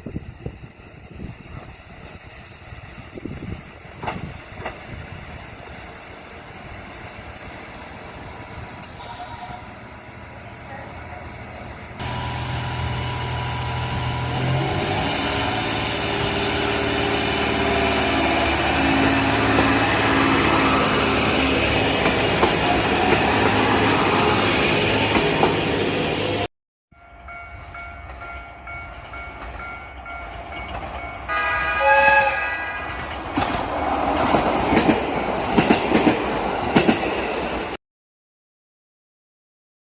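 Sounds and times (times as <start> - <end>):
diesel railcar engine: 0.0 - 26.5
train horn blast: 31.3 - 33.1.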